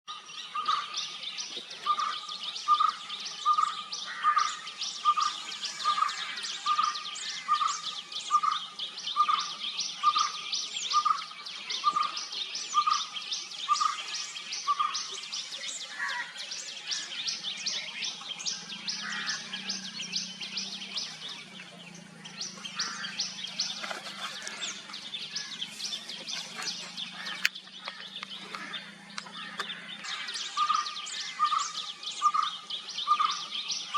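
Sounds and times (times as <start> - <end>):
barbet low repeated call: 18.4 - 33.9.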